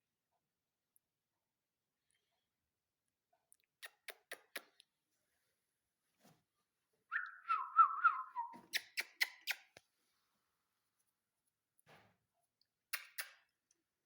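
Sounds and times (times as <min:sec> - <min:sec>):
parrot whistling: 0:07.1 - 0:09.6.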